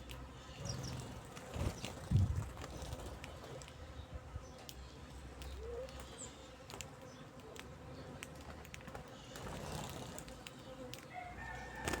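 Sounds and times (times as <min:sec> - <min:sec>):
beaks pecking at food: 0:04.6 - 0:12.0.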